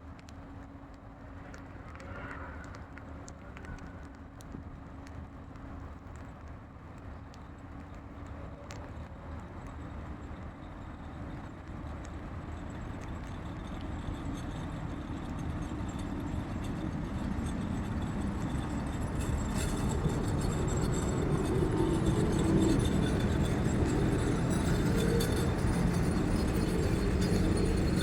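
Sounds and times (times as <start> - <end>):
train rumbling: 7.7 - 28.0.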